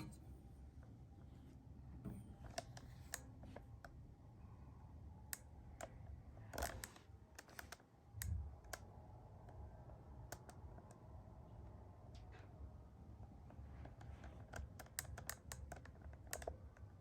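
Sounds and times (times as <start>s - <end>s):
faint low hum: 0.0s - 17.0s
light clicks and taps: 13.4s - 17.0s.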